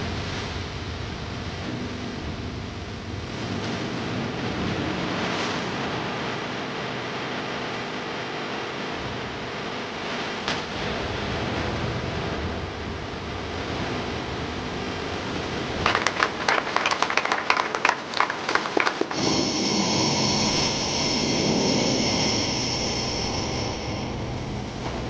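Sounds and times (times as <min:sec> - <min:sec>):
high turbine whine: 0:00.0 - 0:25.0
jet engine rush: 0:15.9 - 0:25.0.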